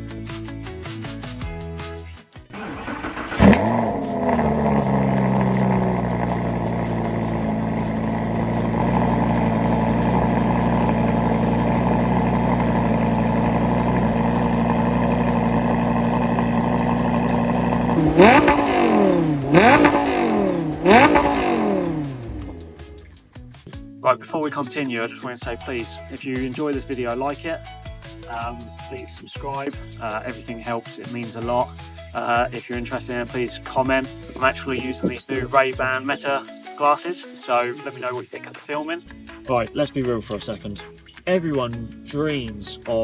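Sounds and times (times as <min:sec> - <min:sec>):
car engine starting and idling: 0:02.6 - 0:23.2
engine revving: 0:02.6 - 0:23.2.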